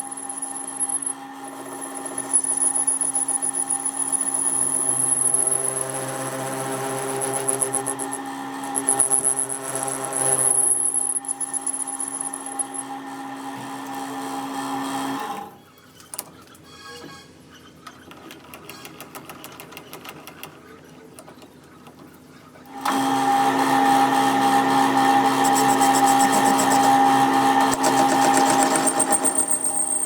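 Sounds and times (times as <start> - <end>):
workshop machine humming: 22.7 - 30.0.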